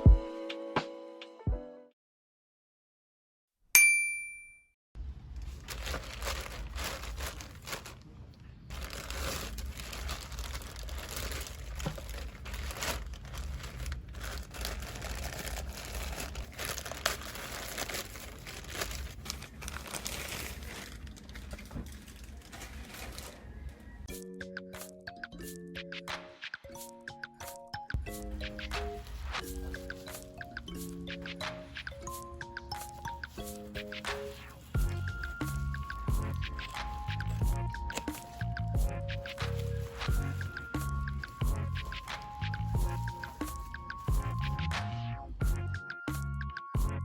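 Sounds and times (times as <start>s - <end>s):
packaging crinkling and rustling: 5.2s - 24.0s, 28.4s - 31.0s, 31.6s - 44.7s.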